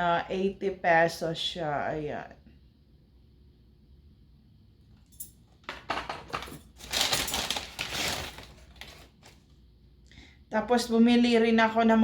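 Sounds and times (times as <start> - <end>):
plastic packaging rustling: 5.6 - 9.6.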